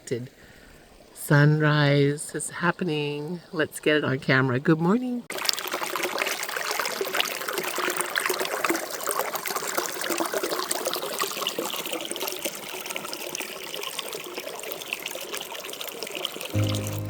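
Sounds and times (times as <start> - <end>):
water trickling and lapping: 5.3 - 16.6.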